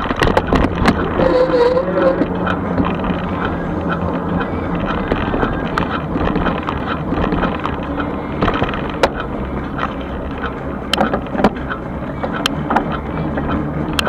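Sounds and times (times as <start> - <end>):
bike rolling: 0.0 - 14.0
sharp clicks and rattles: 0.0 - 14.0
wind noise: 0.0 - 14.0.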